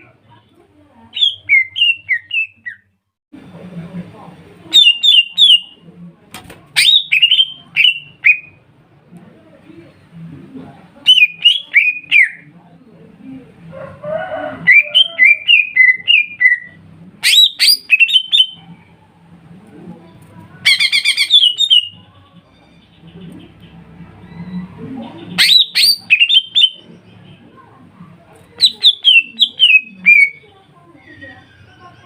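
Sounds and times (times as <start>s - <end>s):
bird whistled song: 1.2s - 2.9s, 14.7s - 18.6s, 20.7s - 22.0s, 25.4s - 26.9s, 28.6s - 30.4s.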